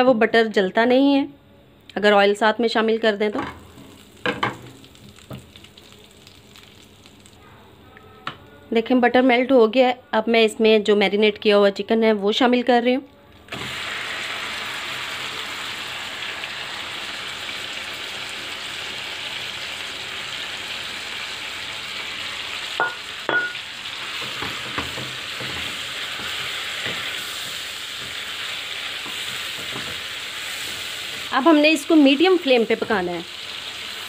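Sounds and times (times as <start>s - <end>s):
chicken sizzling in a frying pan: 3.5s - 7.4s, 13.5s - 34.0s
spatula knocking on pan: 24.2s - 27.1s.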